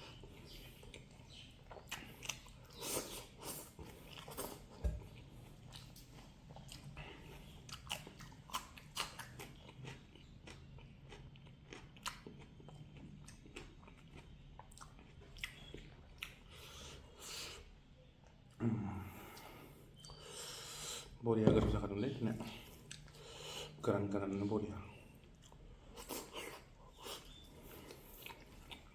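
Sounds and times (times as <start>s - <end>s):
person chewing food: 0.0s - 17.7s, 22.4s - 23.8s, 25.0s - 28.9s.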